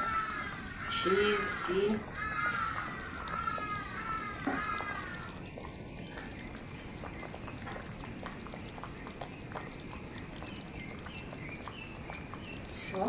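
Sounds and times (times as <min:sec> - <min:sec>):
pot bubbling: 0:00.0 - 0:13.0.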